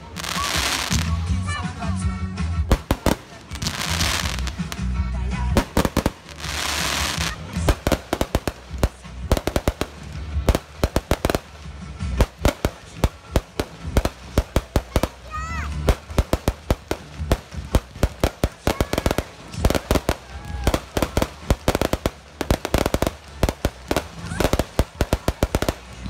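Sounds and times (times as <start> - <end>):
hissing firework crackle: 0.0 - 1.4, 2.7 - 26.0
music with low bass: 0.0 - 26.0
firework shells bursting: 2.7 - 26.0.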